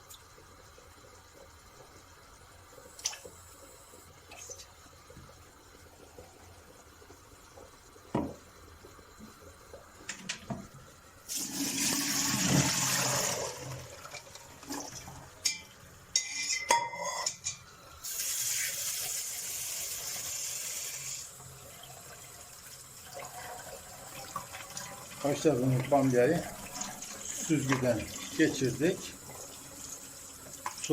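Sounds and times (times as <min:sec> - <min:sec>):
metal pot and colander clanking: 0:15.4 - 0:17.6.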